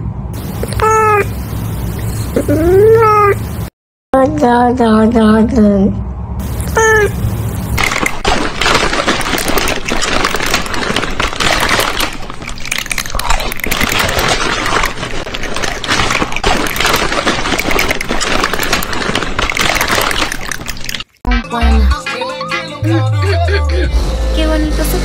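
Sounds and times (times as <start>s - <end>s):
crunching and chewing snack food: 7.8s - 21.3s.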